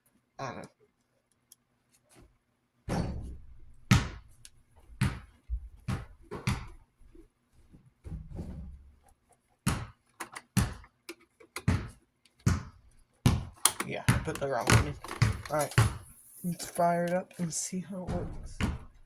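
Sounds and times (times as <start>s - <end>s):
metal fan parts clunking: 13.6s - 17.6s.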